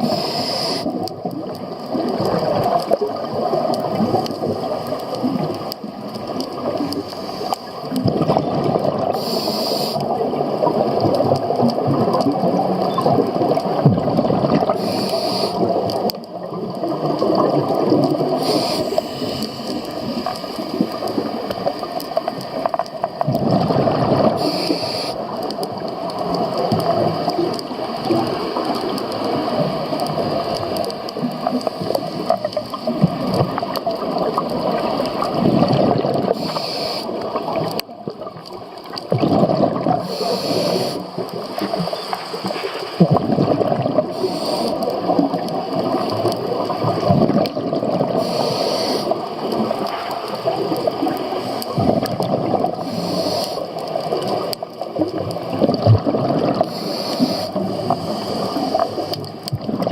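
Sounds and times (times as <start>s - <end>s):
regulator inhale hiss: 0.0s - 1.0s, 7.0s - 7.9s, 9.1s - 10.1s, 14.8s - 15.8s, 18.3s - 20.7s, 24.4s - 25.4s, 36.2s - 37.2s, 40.0s - 43.0s, 44.1s - 45.0s, 48.1s - 49.4s, 52.7s - 53.8s, 56.6s - 59.2s
underwater exhaled bubbles: 0.0s - 59.9s.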